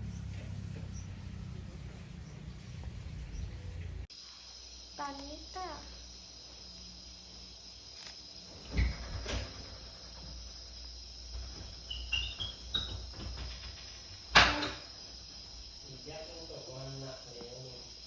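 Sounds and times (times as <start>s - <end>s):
crickets and insects chorus: 0.0s - 18.0s.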